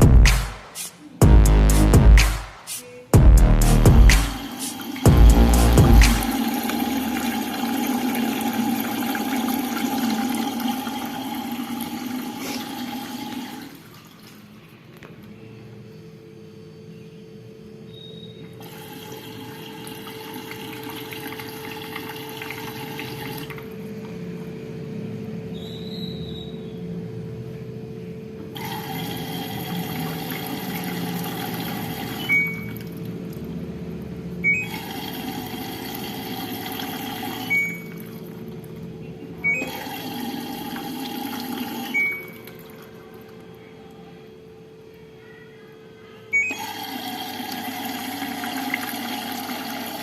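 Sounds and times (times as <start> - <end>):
steady hum: 0.0 - 13.9
inlet valve knocking: 3.2 - 6.9
water rushing into washing machine: 4.0 - 14.6, 18.6 - 23.8, 28.6 - 43.6, 46.4 - 50.0.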